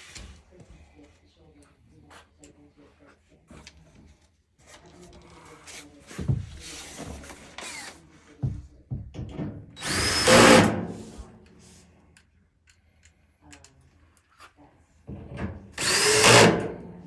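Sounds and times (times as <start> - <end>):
drill driving screws into metal: 9.8 - 11.2, 15.8 - 16.9.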